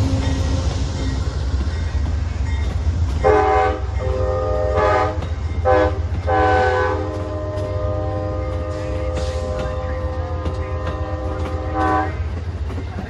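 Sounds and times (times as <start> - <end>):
train rumbling: 0.0 - 13.0
locomotive air horn: 3.2 - 12.3.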